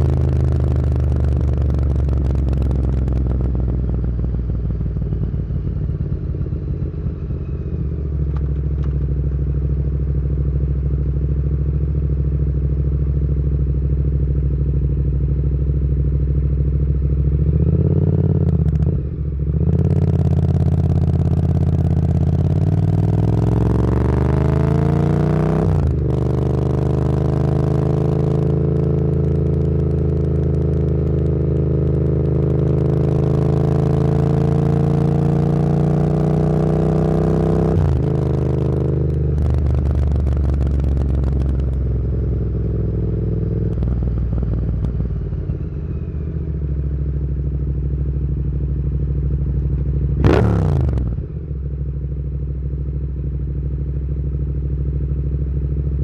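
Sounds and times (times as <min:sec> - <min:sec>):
motorcycle engine revving: 0:00.0 - 0:06.0, 0:16.2 - 0:51.8.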